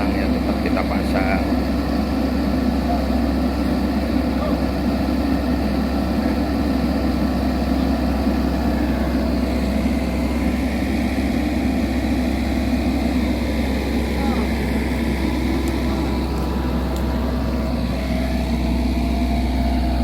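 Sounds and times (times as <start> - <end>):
excavator engine running: 0.0 - 20.0.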